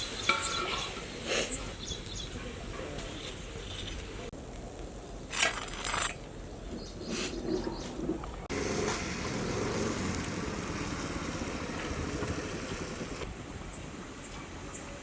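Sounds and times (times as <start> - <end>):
hot oil sizzling: 8.5 - 13.3.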